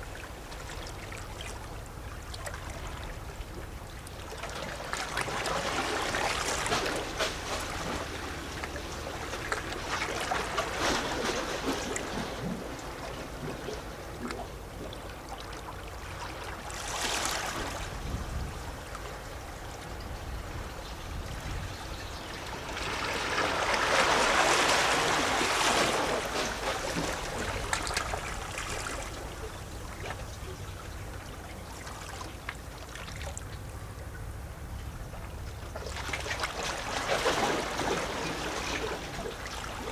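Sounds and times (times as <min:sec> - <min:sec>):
waves splashing on rocks: 0:04.4 - 0:13.9, 0:22.4 - 0:30.4, 0:35.8 - 0:39.9.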